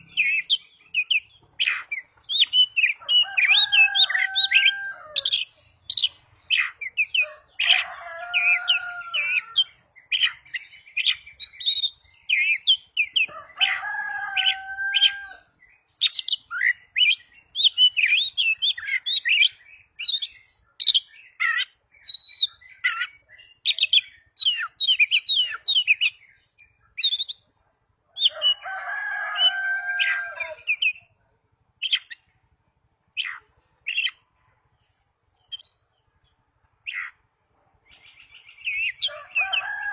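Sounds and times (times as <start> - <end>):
bird singing chirps and whistles: 0.0 - 7.2, 10.1 - 13.3, 15.8 - 27.4, 35.4 - 35.9, 37.9 - 39.6.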